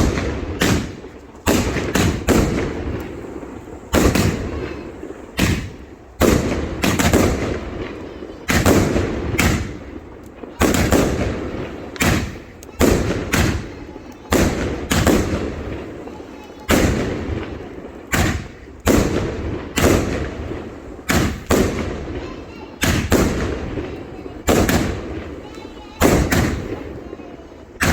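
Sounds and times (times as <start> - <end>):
fireworks banging: 0.0 - 27.9
rumbling echo: 0.0 - 27.9.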